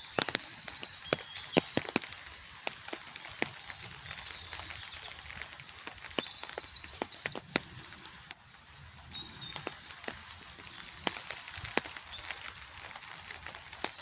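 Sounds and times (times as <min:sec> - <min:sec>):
high bird chirps: 0:00.0 - 0:08.2
rain falling: 0:00.0 - 0:14.0
raindrops tapping: 0:00.0 - 0:14.0.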